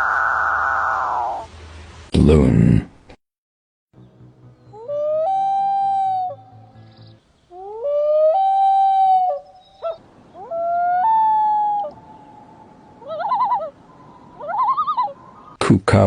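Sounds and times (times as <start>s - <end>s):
loon tremolo calls: 0.0s - 1.5s, 4.0s - 15.6s
loon wailing calls: 0.0s - 1.5s, 4.7s - 15.6s.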